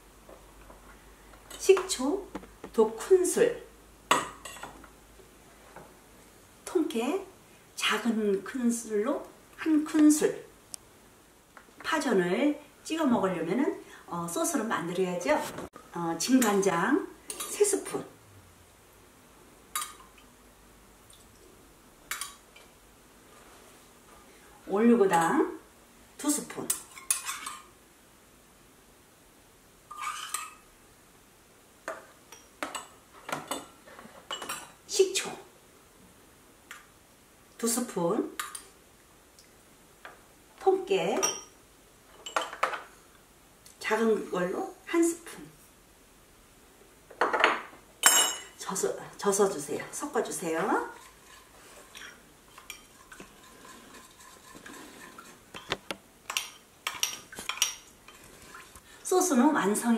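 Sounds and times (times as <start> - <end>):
spoon scraping metal cup: 29.9 - 30.6, 51.0 - 55.4.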